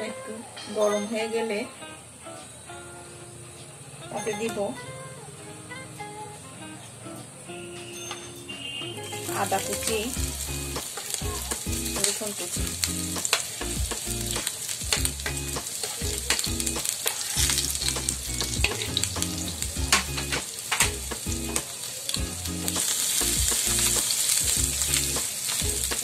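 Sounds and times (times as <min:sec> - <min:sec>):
ginger and garlic sizzling in oil: 0:07.9 - 0:26.0.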